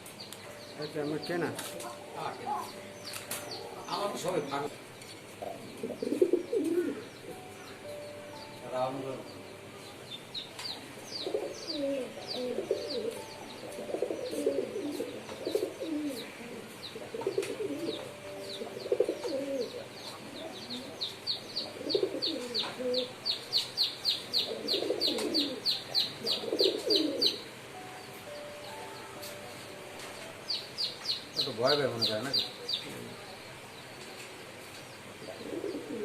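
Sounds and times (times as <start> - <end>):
pigeons cooing: 5.4 - 8.0, 10.7 - 27.7, 35.2 - 36.0.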